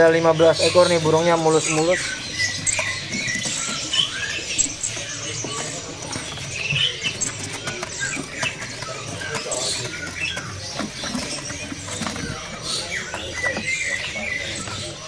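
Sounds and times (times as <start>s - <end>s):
birds tapping and fluttering: 0.0s - 15.0s
caged songbirds chirping: 0.0s - 15.0s.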